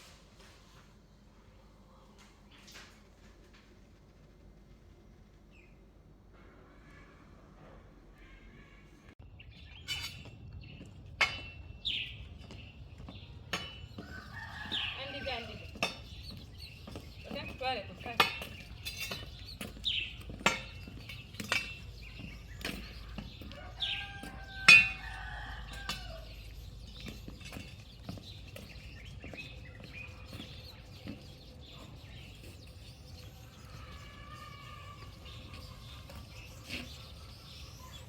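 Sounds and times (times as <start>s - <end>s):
poultry and small birds chirping: 8.2s - 38.0s
rooster crowing: 14.0s - 15.6s, 23.5s - 26.4s.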